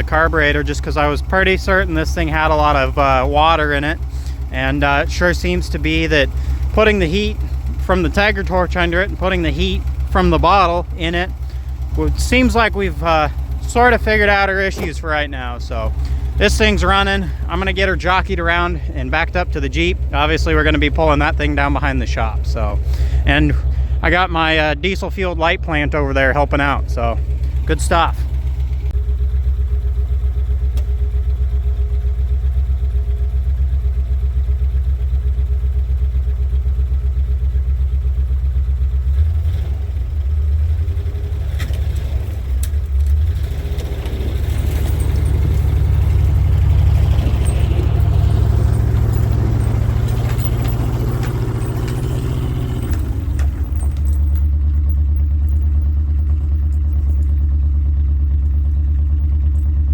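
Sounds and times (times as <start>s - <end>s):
truck engine idling and revving: 0.0s - 59.9s.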